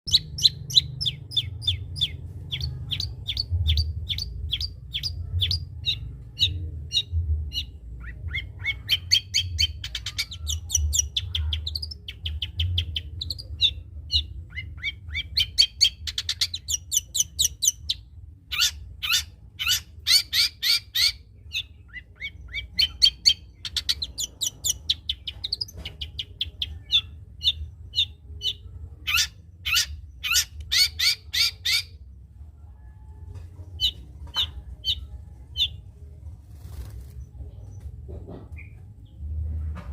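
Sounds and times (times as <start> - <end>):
bird singing rapid chips: 0.1 - 32.0.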